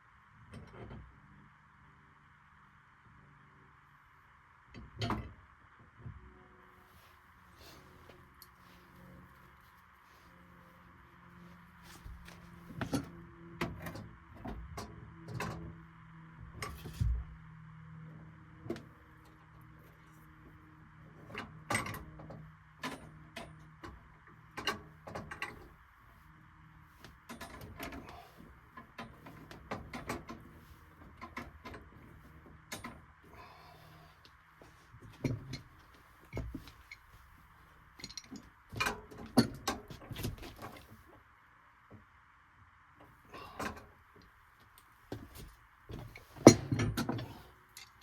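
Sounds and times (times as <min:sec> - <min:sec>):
tools clicking and knocking: 0:38.0 - 0:40.8, 0:45.1 - 0:48.0.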